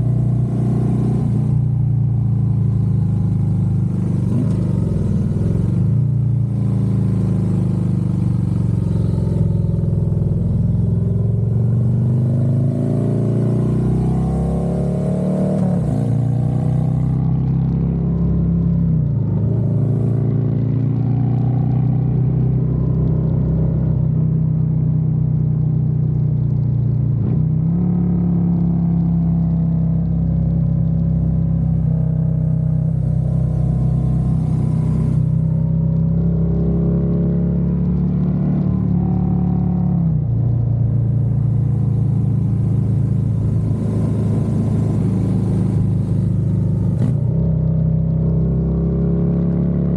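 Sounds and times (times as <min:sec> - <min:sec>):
motorcycle engine running: 0:00.0 - 0:17.4, 0:40.2 - 0:48.2.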